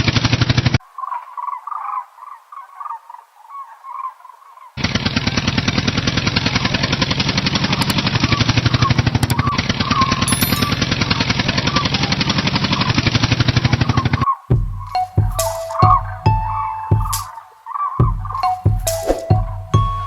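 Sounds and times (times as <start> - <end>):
thin patchy chirping: 10.3 - 11.2.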